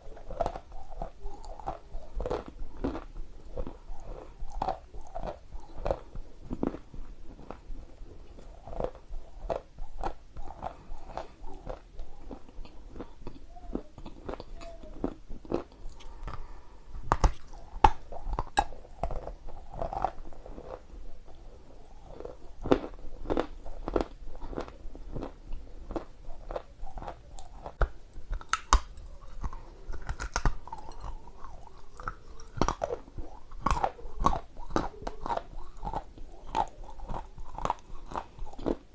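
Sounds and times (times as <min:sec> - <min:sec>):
clay crunching while chewed: 0:00.0 - 0:38.9.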